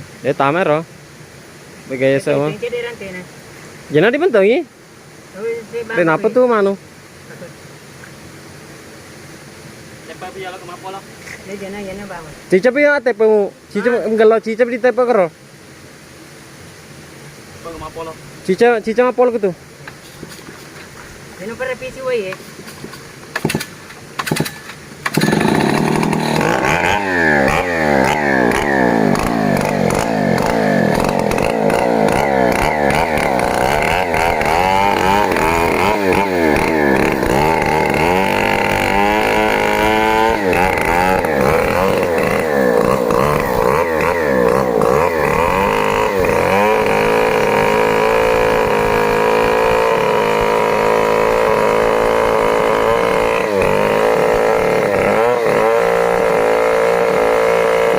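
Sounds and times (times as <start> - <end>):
chainsaw revving: 23.3 - 57.9.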